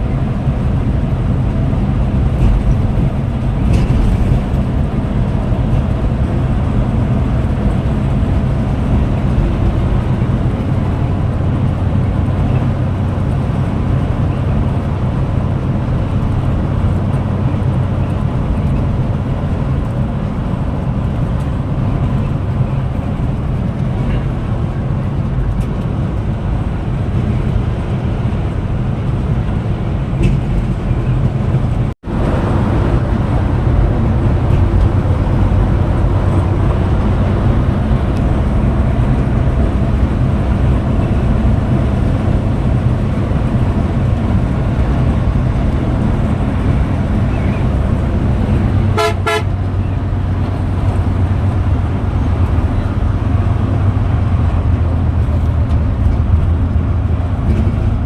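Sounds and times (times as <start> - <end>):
bus engine drone: 0.0 - 58.0
vehicle horn toot: 48.9 - 49.8.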